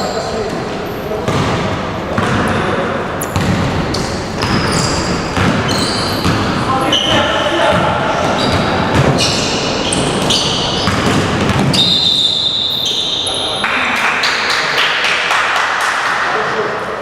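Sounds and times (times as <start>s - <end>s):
basketball bouncing on court: 1.2s - 2.6s, 3.2s - 12.7s
shoe squeaks: 3.2s - 13.6s.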